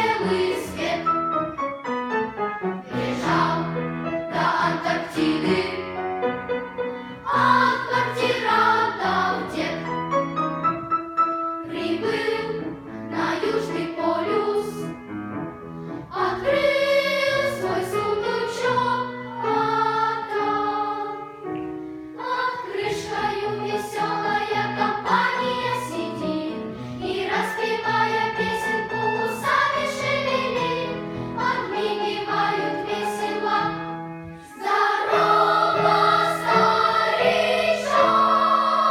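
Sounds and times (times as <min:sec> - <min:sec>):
children's choir singing: 0:00.0 - 0:01.7, 0:02.8 - 0:10.5, 0:11.6 - 0:15.0, 0:16.0 - 0:38.9
singers breathing: 0:26.7 - 0:27.0, 0:31.0 - 0:31.4.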